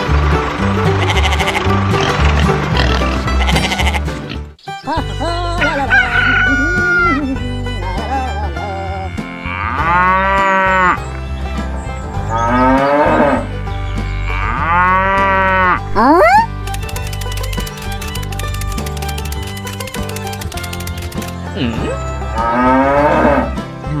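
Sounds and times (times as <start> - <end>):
background music: 0.0 - 24.0
cow mooing: 9.1 - 11.0, 12.3 - 16.3, 22.4 - 23.6.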